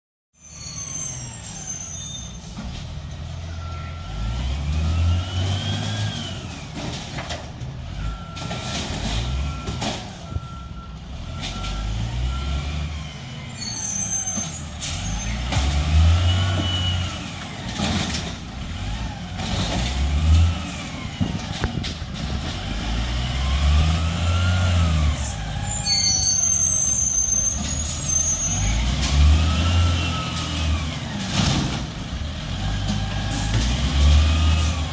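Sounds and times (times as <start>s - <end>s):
air brake squeaks and hisses: 0.4s - 2.9s, 13.4s - 15.5s, 25.0s - 28.9s
garbage truck engine revving: 2.4s - 34.9s
reversing beeper: 3.5s - 4.4s, 8.0s - 15.4s, 23.4s - 30.4s.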